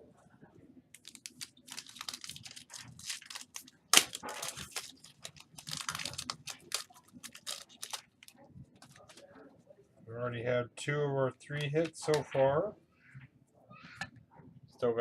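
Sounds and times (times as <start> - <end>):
foil card pack crinkling: 1.0 - 9.3.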